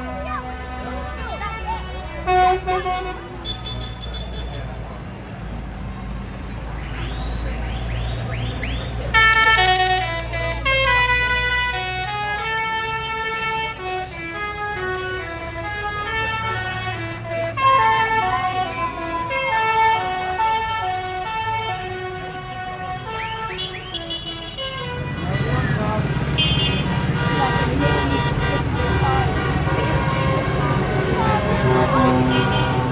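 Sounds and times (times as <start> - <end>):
tractor engines rumbling: 0.0 - 32.9
musical horn playing a tune: 9.1 - 32.9.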